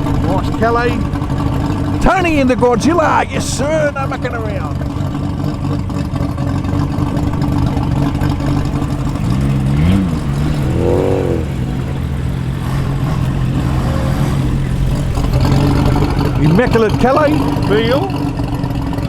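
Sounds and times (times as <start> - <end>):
car engines running: 0.0 - 19.0
engine revving: 8.4 - 16.3.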